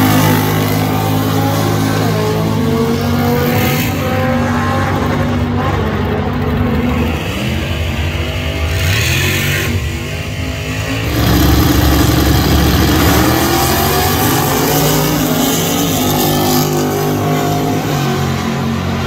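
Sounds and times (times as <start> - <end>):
car engine accelerating hard: 10.8 - 19.0.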